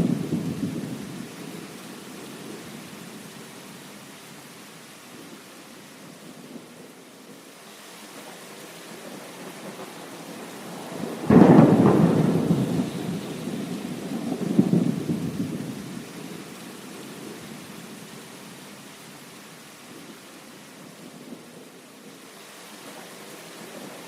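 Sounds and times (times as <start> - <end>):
steady rain: 0.0 - 24.0
thunder clap and rumble: 9.0 - 16.3.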